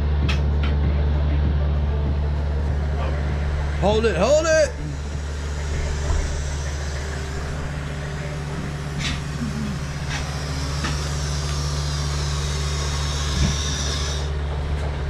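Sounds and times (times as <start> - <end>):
car engine idling: 0.0 - 15.0
hiss: 9.0 - 14.3.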